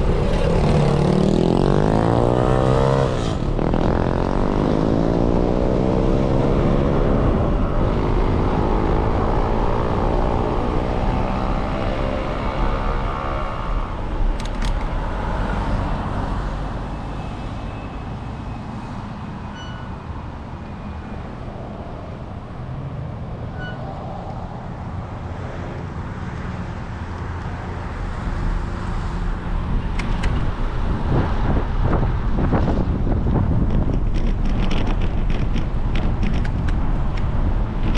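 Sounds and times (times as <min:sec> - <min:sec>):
cars passing: 0:00.0 - 0:37.9
wind on microphone: 0:29.4 - 0:37.9.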